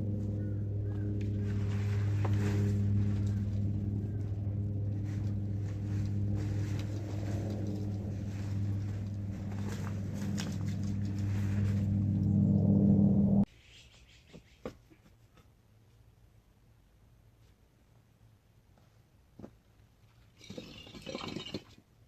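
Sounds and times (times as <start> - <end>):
engine humming: 0.0 - 13.5.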